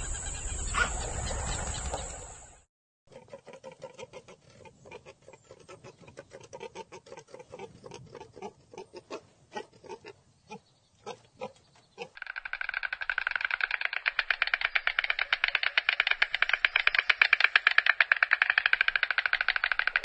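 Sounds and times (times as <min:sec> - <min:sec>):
fast ticking rattle: 0:12.2 - 0:20.0.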